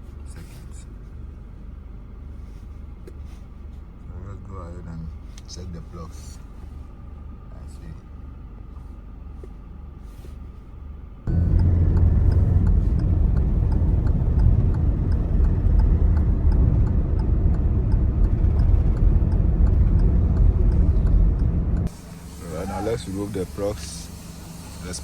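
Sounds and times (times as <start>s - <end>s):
car engine rumbling: 0.0s - 25.0s
regular engine ticking: 11.2s - 25.0s.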